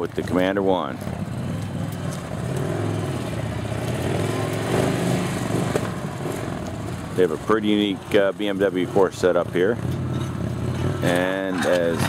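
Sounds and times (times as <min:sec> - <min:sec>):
motorcycle engine at low speed: 0:00.0 - 0:12.0.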